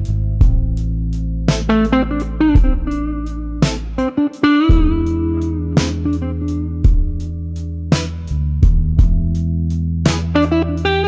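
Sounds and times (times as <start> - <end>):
slow blues guitar and bass: 0.0 - 11.0
drum beat: 0.4 - 0.9, 1.5 - 2.0, 2.6 - 4.1, 4.7 - 6.2, 6.9 - 7.3, 8.0 - 9.5.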